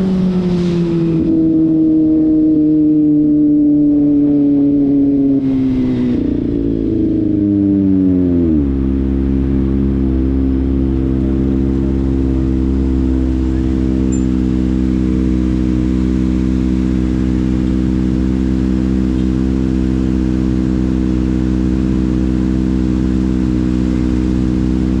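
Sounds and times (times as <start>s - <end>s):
motorcycle engine idling: 6.2s - 25.0s.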